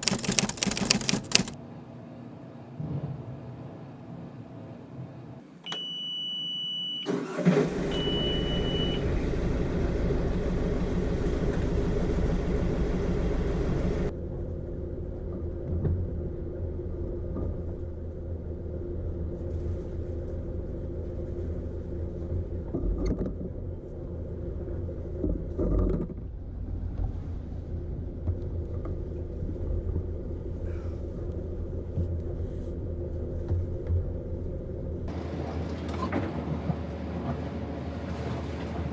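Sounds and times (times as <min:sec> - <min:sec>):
warning beep: 0:05.7 - 0:07.1, 0:07.9 - 0:09.0
diesel engine starting and running: 0:07.0 - 0:32.0, 0:34.3 - 0:38.9
engine knocks: 0:35.1 - 0:38.9.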